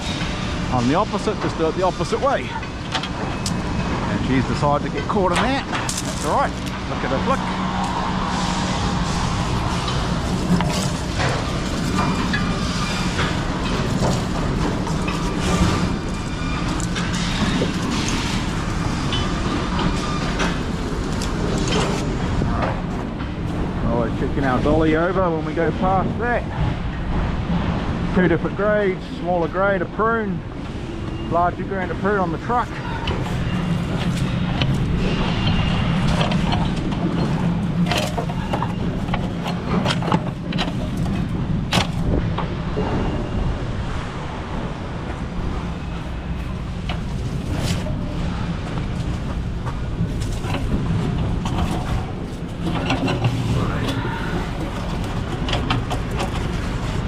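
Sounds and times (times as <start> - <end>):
heavy diesel engine running: 0.0 - 27.3, 28.2 - 57.0
metallic clanks: 32.7 - 43.2, 50.0 - 57.0.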